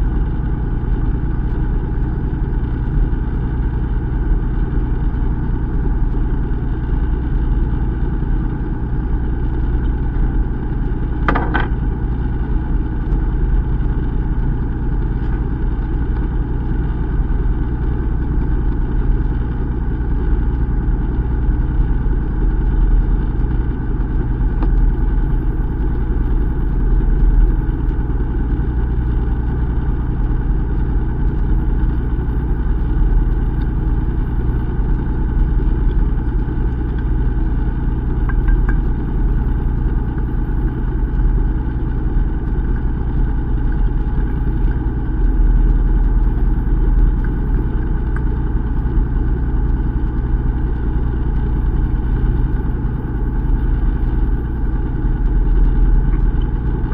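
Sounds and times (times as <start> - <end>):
boat engine humming: 11.0 - 12.5, 32.0 - 49.2, 54.3 - 56.9.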